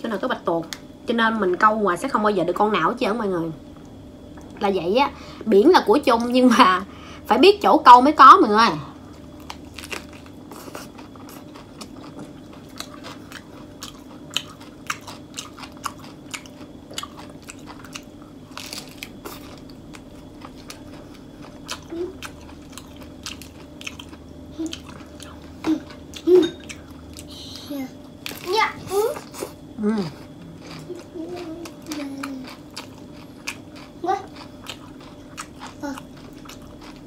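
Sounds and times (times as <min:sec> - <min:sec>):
steady low hum: 0:00.0 - 0:37.0
crisp leafy crunches: 0:09.4 - 0:11.0, 0:18.5 - 0:19.6.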